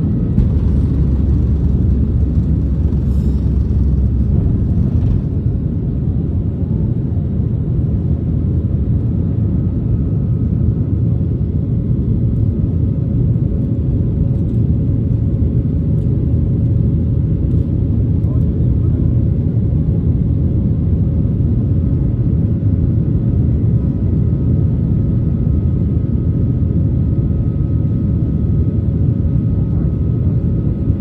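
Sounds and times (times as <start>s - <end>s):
faint steady hum: 0.0s - 6.9s
jet engine rumble in cabin: 0.0s - 31.0s.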